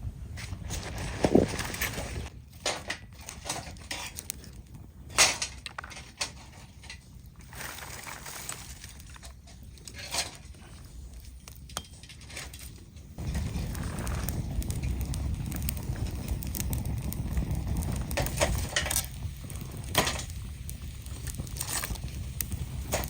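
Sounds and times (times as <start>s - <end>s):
low outdoor background: 0.0s - 23.0s
clicks and knocks of handling: 2.6s - 7.1s.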